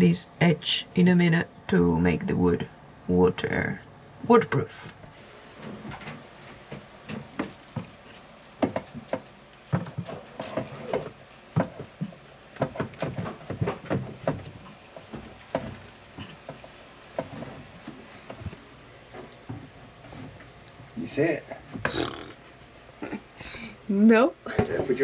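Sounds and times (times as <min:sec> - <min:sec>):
objects knocking on wooden boards: 0:05.7 - 0:20.5.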